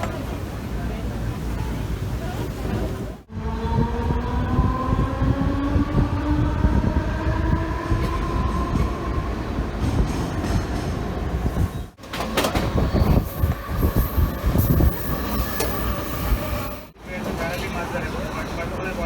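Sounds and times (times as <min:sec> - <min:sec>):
train rumble: 0:00.0 - 0:19.0
train whine rising in pitch: 0:12.5 - 0:16.9.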